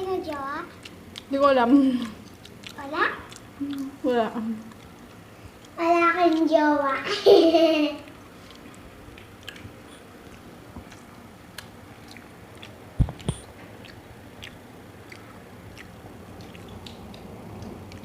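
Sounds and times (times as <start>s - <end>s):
chewing a sandwich: 0.2s - 6.5s, 8.0s - 18.0s
wet mouth clicks and smacks: 2.1s - 4.0s, 8.1s - 18.0s.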